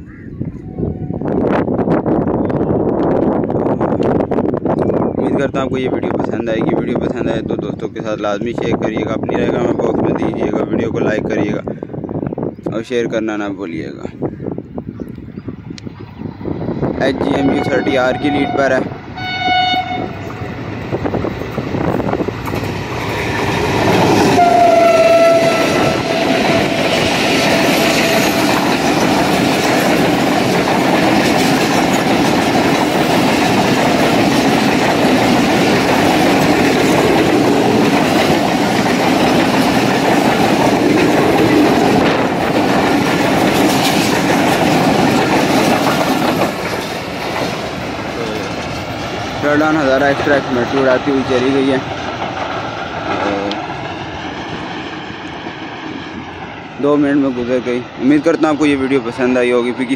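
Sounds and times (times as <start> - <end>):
train wheels on rail joints: 15.1 - 59.9
train horn blast: 17.3 - 20.6, 24.2 - 28.3.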